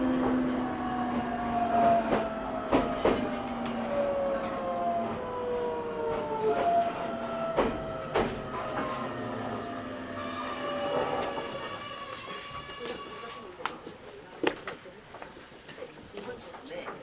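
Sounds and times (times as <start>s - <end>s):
electric train motors whining: 0.0s - 13.6s.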